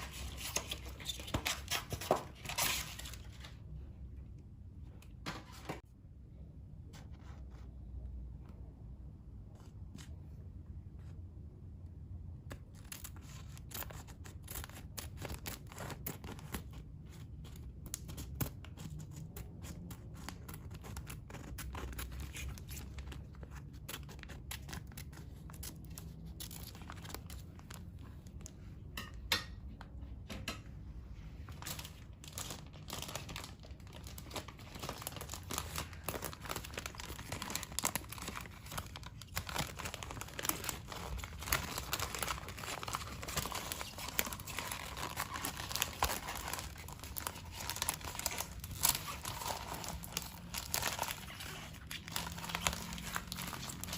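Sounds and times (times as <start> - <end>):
plastic packaging crinkling: 19.6 - 28.5, 31.5 - 53.9.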